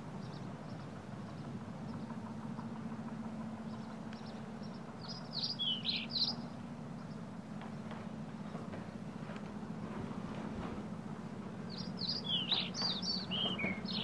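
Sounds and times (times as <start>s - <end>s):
small birds chirping: 0.0s - 10.0s, 10.8s - 14.0s
low steady hum: 0.0s - 14.0s
downward-sweeping bird chirps: 3.6s - 7.3s, 11.7s - 14.0s.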